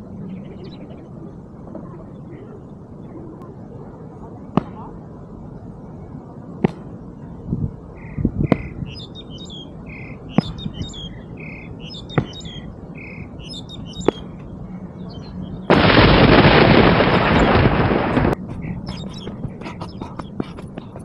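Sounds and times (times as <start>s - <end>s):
birds chirping: 0.0s - 6.4s, 7.0s - 21.0s
loud even noise: 15.7s - 18.6s.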